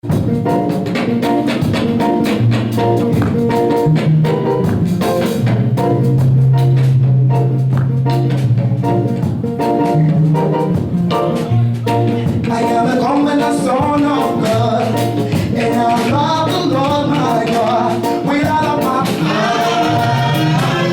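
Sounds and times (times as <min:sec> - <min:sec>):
drum kit: 0:00.0 - 0:20.9
low bass notes: 0:02.2 - 0:20.9.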